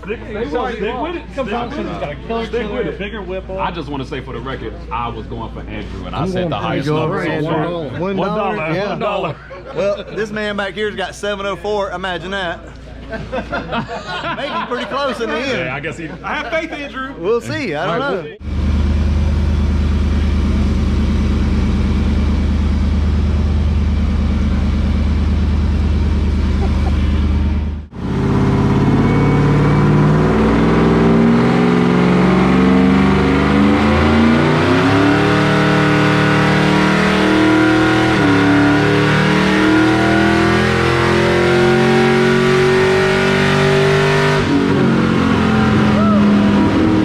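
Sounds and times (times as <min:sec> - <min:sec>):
supercharged engine on dyno: 0:18.4 - 0:47.0.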